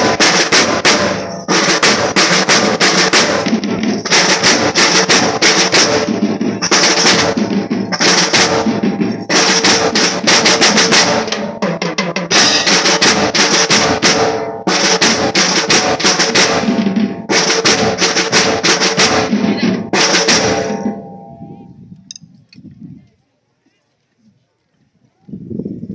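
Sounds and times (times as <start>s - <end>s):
snare drum rolls: 0.0s - 21.2s
bass drum beats: 0.0s - 21.7s.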